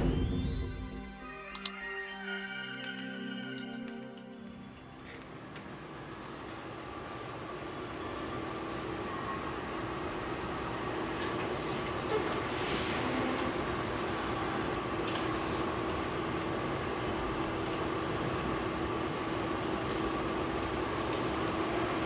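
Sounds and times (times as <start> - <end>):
factory machinery humming: 0.0 - 15.2
high hissing: 12.2 - 14.8.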